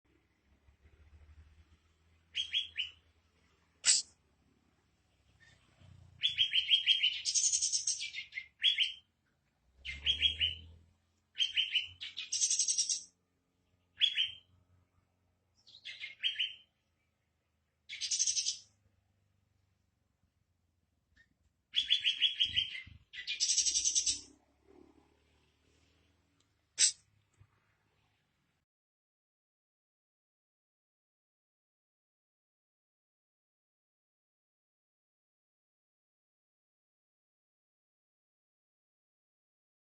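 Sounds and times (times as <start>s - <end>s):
bird song with chirps and buzzy notes: 0.8s - 4.2s, 5.2s - 19.0s, 21.2s - 24.8s.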